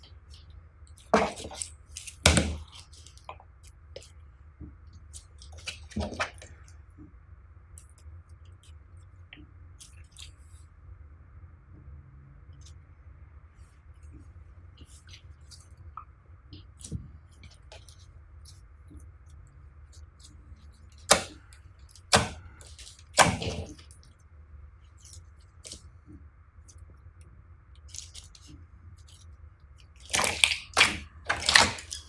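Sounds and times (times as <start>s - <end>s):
slime worked by hand: 0.0s - 6.7s, 19.9s - 24.0s, 27.8s - 32.0s
faint low hum: 0.0s - 32.0s.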